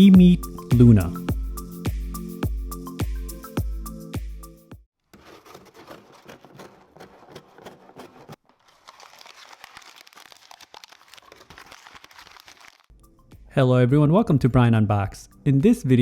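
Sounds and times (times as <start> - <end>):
packaging crinkling and tearing: 5.2 - 12.9.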